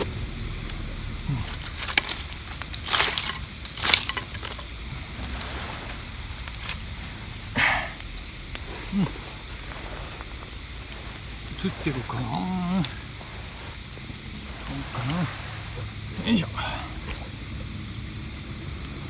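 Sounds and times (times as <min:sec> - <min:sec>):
rustling handling noises: 0:00.0 - 0:19.0
wind: 0:00.0 - 0:19.0.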